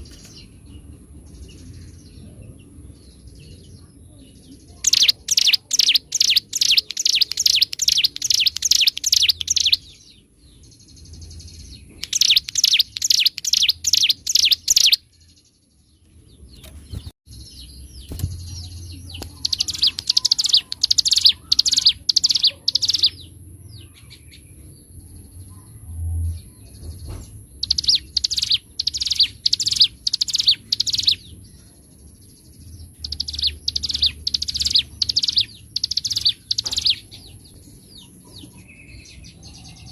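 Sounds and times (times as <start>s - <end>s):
bird singing rattling bursts: 4.8s - 9.9s, 12.0s - 15.0s, 19.3s - 23.2s, 27.5s - 31.2s, 33.0s - 37.1s.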